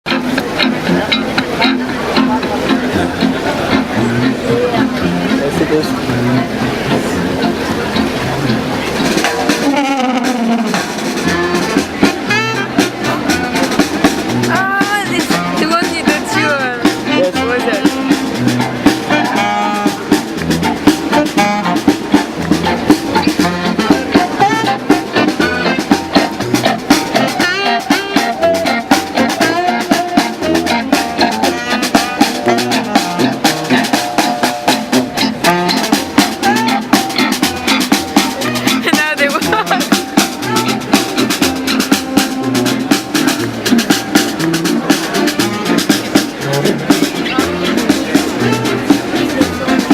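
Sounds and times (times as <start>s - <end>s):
street band playing funky music: 0.0s - 49.9s
drum kit beat: 0.1s - 49.9s
sliding melody lines: 0.1s - 49.9s.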